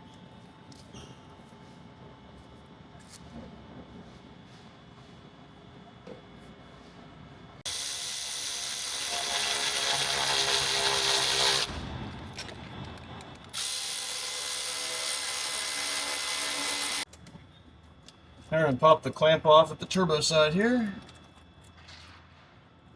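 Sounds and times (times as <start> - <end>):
electric ratchet motor whining: 7.7 - 11.7, 13.5 - 17.1.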